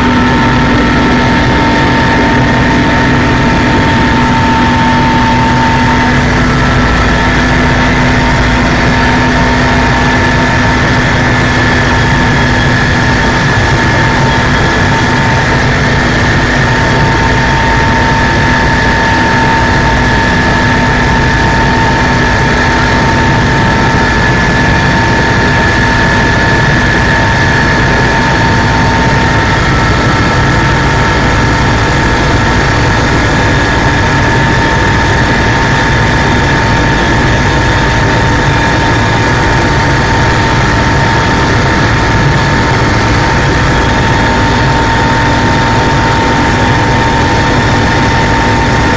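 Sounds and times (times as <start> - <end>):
helicopter engine and rotor noise: 0.0 - 48.9.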